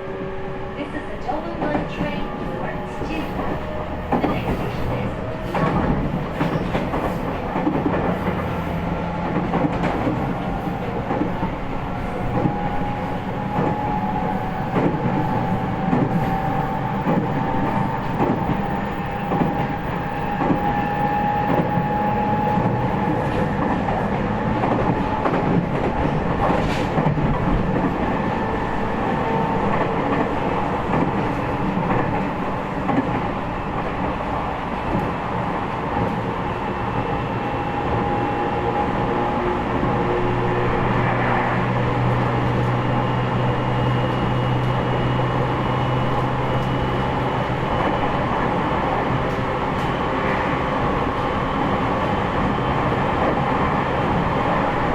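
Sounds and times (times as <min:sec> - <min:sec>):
rail-joint clicks: 0:01.4 - 0:33.9.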